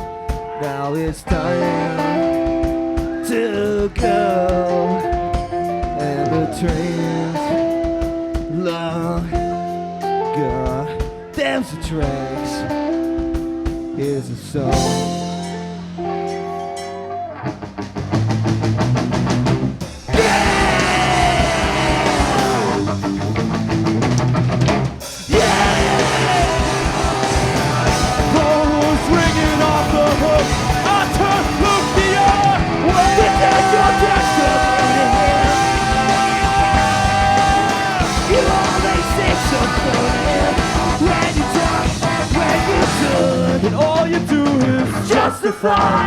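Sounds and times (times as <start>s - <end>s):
drum kit: 0.0s - 46.0s
punk rock band playing: 0.0s - 46.0s.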